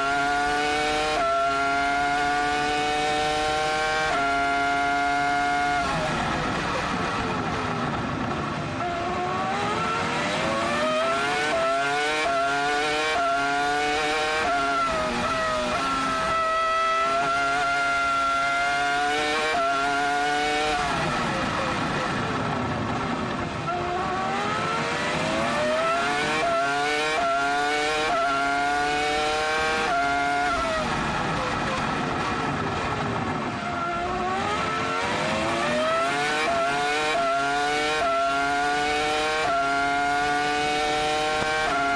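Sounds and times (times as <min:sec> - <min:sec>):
racing car engine revving: 0:00.0 - 0:07.6, 0:08.8 - 0:22.6, 0:23.6 - 0:41.9.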